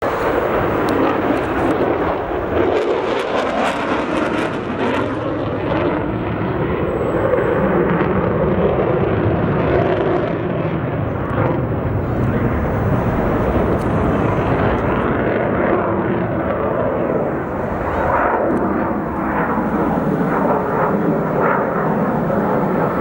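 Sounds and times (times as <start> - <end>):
fighter jet engine roar: 0.0 - 23.0
sharp crackles: 0.1 - 2.3.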